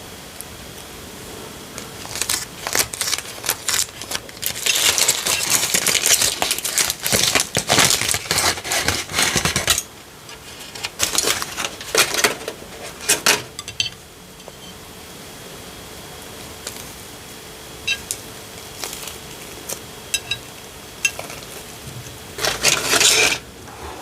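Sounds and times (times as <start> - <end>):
dishes and utensils clattering: 4.6 - 14.7, 17.9 - 18.1, 20.2 - 21.4, 22.4 - 23.4.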